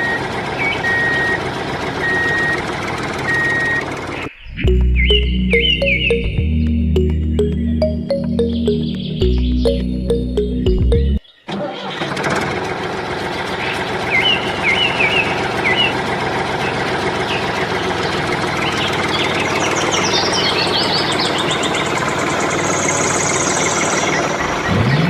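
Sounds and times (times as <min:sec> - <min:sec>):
engine running: 0:00.0 - 0:25.0
music: 0:04.6 - 0:11.2
short high chirps: 0:04.6 - 0:11.2.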